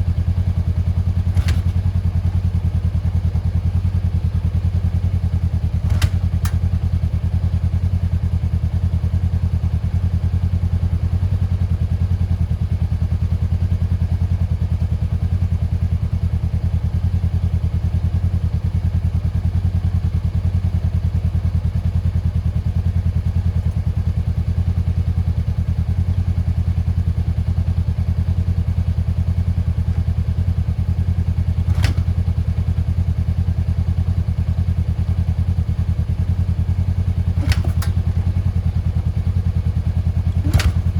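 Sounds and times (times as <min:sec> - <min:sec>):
motorcycle engine idling: 0:00.0 - 0:40.9
sharp click: 0:01.4 - 0:01.9, 0:05.9 - 0:06.6, 0:31.7 - 0:32.3, 0:37.4 - 0:38.3, 0:40.3 - 0:40.9.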